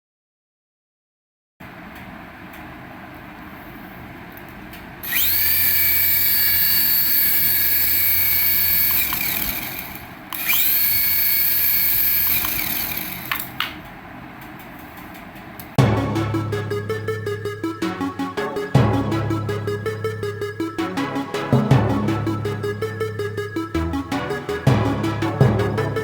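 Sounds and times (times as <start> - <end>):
small electric motor whining: 5.0 - 13.5.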